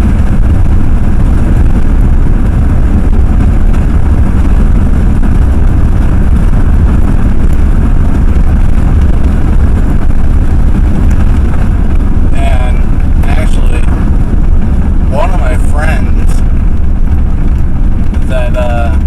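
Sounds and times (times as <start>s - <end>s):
truck engine and road rumble: 0.0s - 19.0s.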